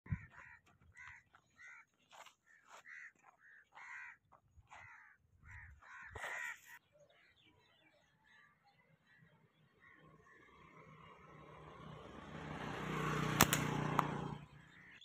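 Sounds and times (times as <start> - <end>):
bird cawing harshly: 2.8 - 4.2, 4.8 - 6.8.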